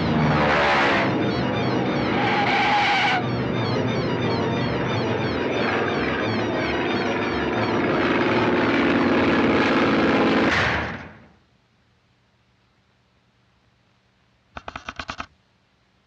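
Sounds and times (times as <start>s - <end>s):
propeller plane engine droning: 0.0s - 10.5s.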